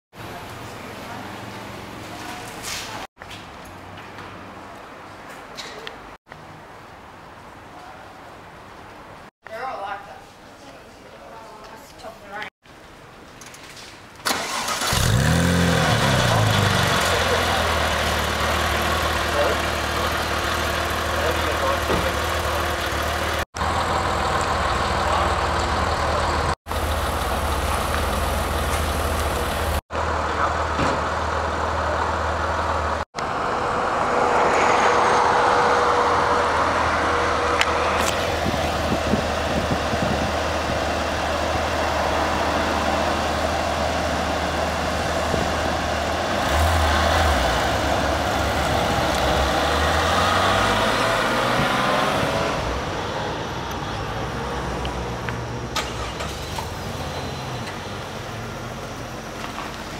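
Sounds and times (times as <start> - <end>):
car engine revving pulling away: 14.3 - 29.8, 33.2 - 59.0
car engine idling: 16.3 - 33.0.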